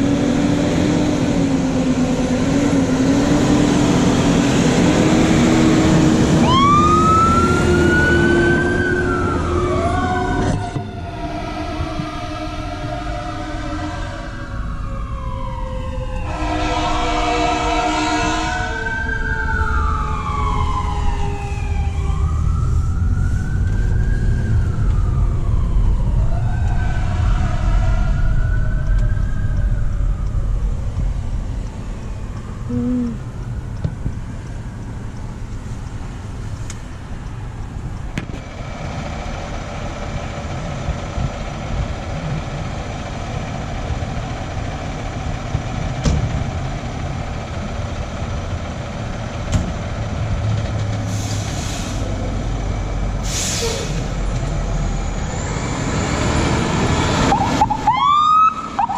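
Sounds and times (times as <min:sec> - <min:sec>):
heavy engine rumble: 0:00.0 - 0:14.7, 0:19.9 - 0:57.9
siren wailing: 0:03.9 - 0:35.1, 0:56.8 - 0:58.9
air horn blast: 0:10.6 - 0:14.4, 0:16.2 - 0:18.9.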